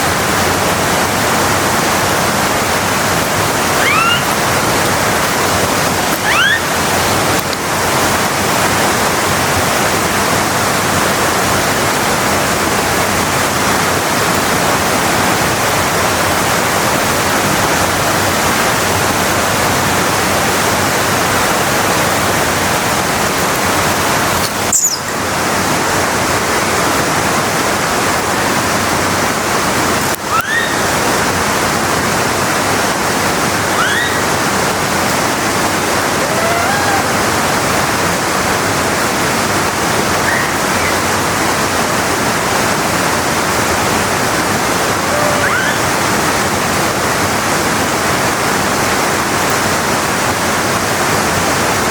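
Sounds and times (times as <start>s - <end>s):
large waterfall rushing: 0.0s - 51.9s
short rising calls: 3.5s - 4.8s, 6.0s - 7.1s, 24.6s - 25.2s, 30.3s - 31.0s, 33.6s - 34.7s, 36.0s - 37.8s, 40.1s - 41.3s, 44.8s - 46.3s.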